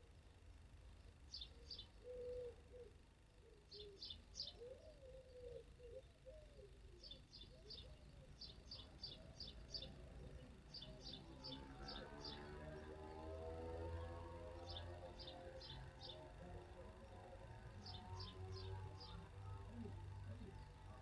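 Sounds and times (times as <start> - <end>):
small birds chirping: 0.0 - 21.0
low cooing call: 1.6 - 21.0.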